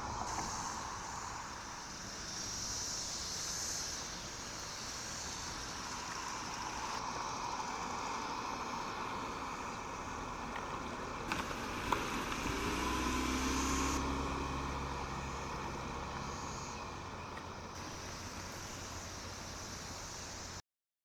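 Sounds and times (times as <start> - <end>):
car engine and road noise: 0.0 - 20.6
sharp clicks: 11.3 - 14.0.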